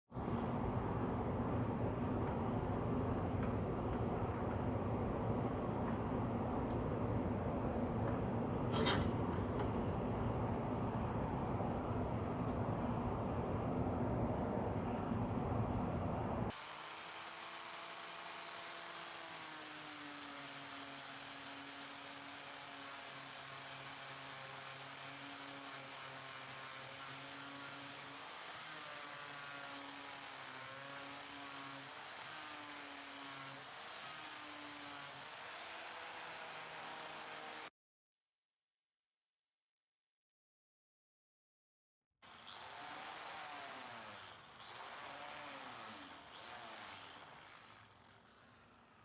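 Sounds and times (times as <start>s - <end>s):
steady motor hum: 0.2s - 19.3s
electric power tool running: 16.5s - 37.7s, 42.3s - 49.0s.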